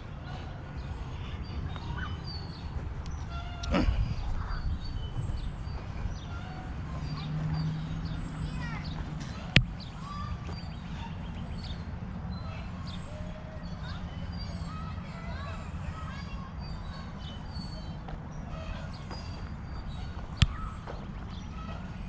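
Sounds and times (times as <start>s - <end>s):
steady low rumble: 0.0s - 12.7s
birds chirping: 0.0s - 22.0s.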